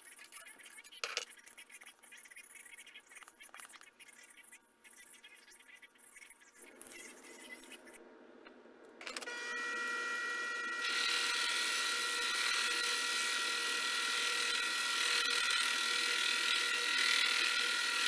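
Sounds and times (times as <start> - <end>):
electric motor whining: 9.0 - 18.0.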